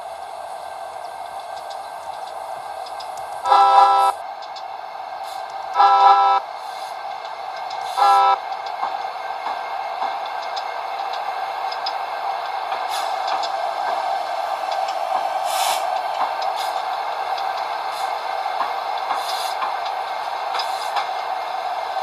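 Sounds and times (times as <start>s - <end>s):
train wheels rumbling on rail: 0.0s - 22.0s
short high hisses: 15.4s - 15.9s.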